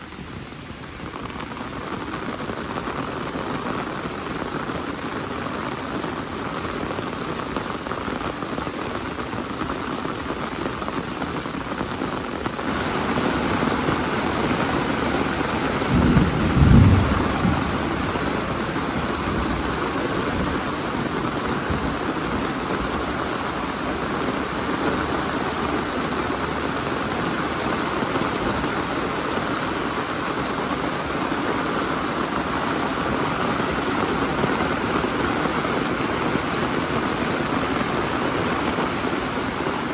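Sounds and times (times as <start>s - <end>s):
heavy rain falling: 0.0s - 39.9s
low rumble: 15.9s - 19.6s.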